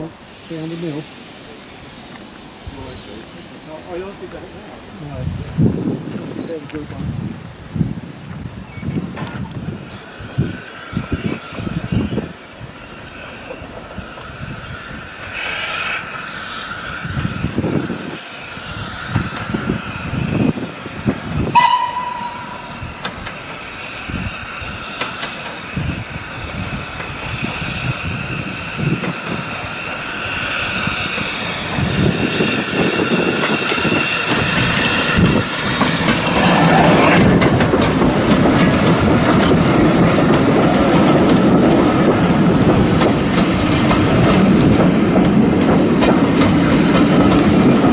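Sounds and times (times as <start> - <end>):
steam train exhaust beats: 8.1 - 47.9
train wheels clattering on rail: 8.3 - 47.9
train whistle blast: 21.5 - 22.7.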